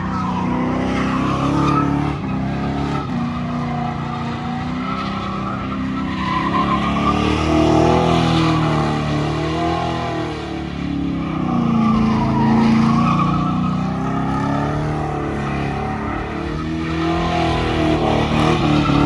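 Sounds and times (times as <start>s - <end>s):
truck engine revving: 5.5s - 19.0s.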